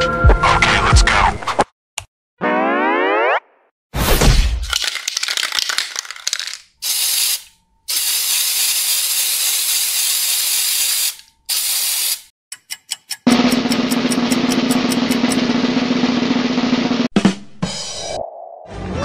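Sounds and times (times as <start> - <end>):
spray can hissing: 4.7 - 12.3
spray can rattling: 4.7 - 12.3
drum roll: 13.3 - 17.4.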